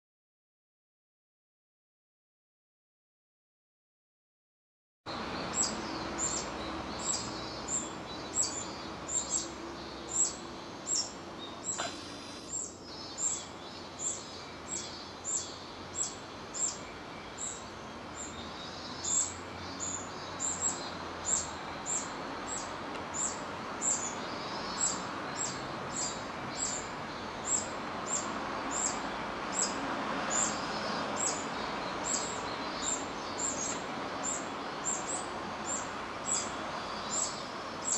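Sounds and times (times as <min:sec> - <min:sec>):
background hiss: 0:05.1 - 0:37.9
chicks begging calls: 0:05.2 - 0:13.4.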